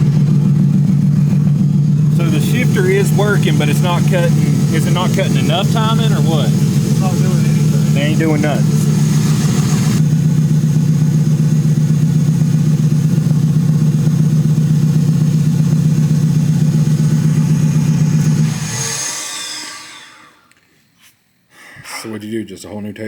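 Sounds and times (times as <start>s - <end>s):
high whine winding down: 0.0s - 11.9s, 15.3s - 20.7s
car engine running: 0.0s - 20.5s.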